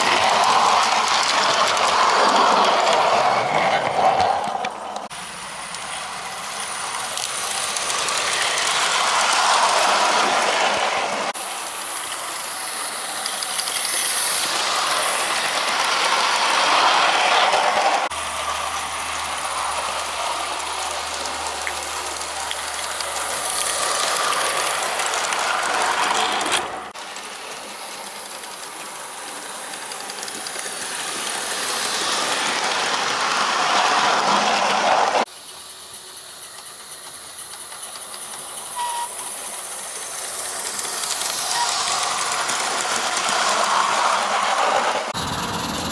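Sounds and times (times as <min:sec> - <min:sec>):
model locomotive wheels clattering: 0:00.0 - 0:45.9
steam hissing: 0:00.0 - 0:45.9.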